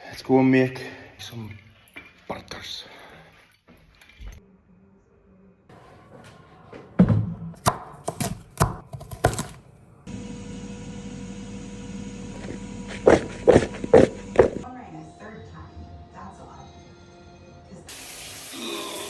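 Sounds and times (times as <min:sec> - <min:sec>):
kitchen knocks and thuds: 0:07.0 - 0:09.6, 0:12.4 - 0:14.6
appliance hum: 0:09.1 - 0:14.6.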